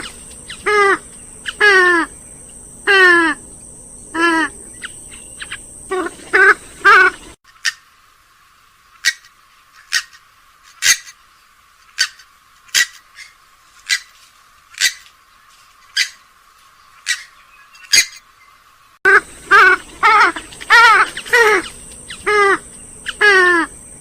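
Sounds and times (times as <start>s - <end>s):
waterbird calls: 0.0s - 3.4s, 4.1s - 7.9s, 19.1s - 24.0s
warbling bird calls: 0.0s - 8.0s, 8.9s - 24.0s.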